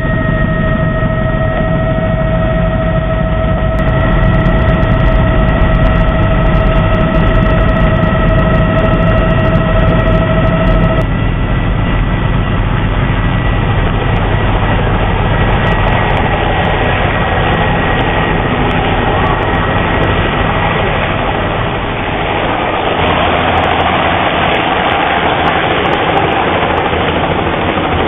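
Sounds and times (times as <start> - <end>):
engine low rumble: 0.0 - 28.0
high whine: 0.0 - 28.0.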